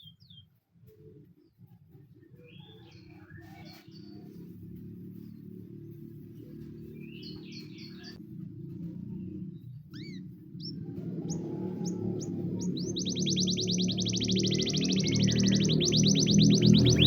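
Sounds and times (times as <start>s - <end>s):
canary singing: 2.5s - 8.2s, 9.2s - 17.0s.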